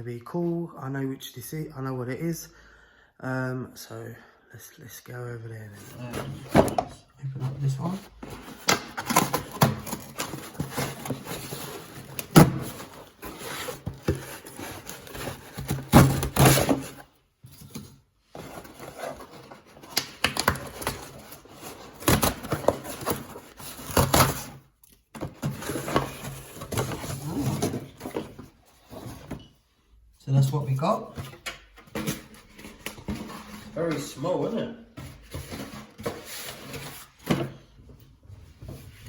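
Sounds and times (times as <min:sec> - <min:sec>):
cardboard package rustling: 0:07.4 - 0:29.2.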